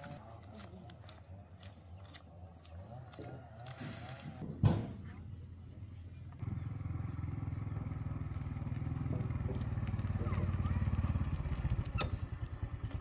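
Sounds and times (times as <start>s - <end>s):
motorbike engine idling: 5.6s - 13.0s.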